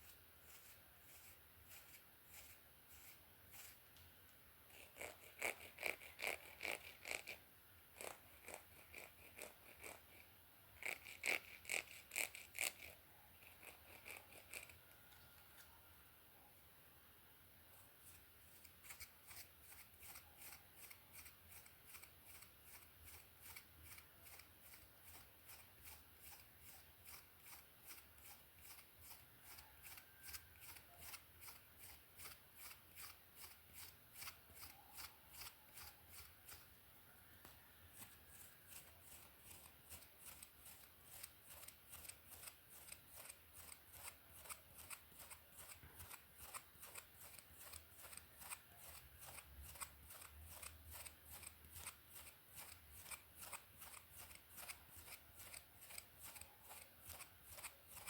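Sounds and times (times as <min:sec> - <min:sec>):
hairbrush strokes through hair: 0:00.0 - 0:03.9, 0:17.8 - 0:36.7, 0:37.9 - 0:58.0.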